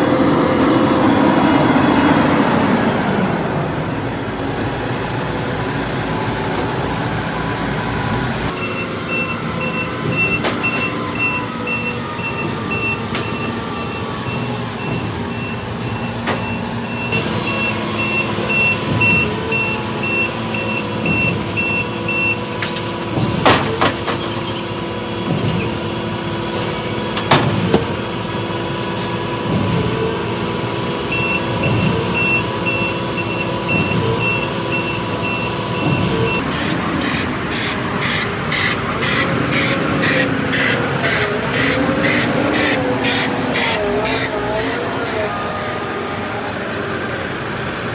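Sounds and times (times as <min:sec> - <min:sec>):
diesel engine running: 0:00.0 - 0:47.9
reversing alarm beeping: 0:08.5 - 0:22.5, 0:23.1 - 0:24.8, 0:31.1 - 0:46.2
loud burst of noise: 0:36.0 - 0:47.1.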